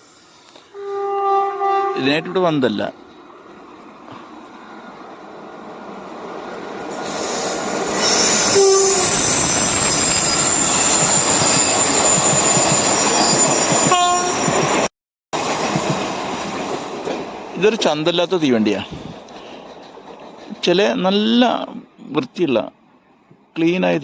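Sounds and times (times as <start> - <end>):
train rumbling: 0.0 - 24.0
train horn toots: 0.7 - 2.4, 8.2 - 9.2, 13.8 - 14.5
train wheel squeal: 6.9 - 16.8.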